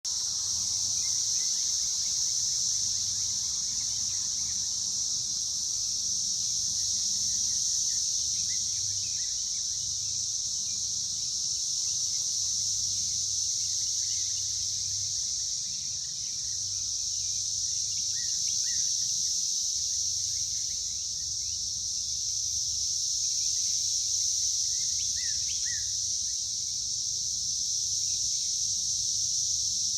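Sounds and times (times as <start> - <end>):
cicadas buzzing: 0.0 - 29.9.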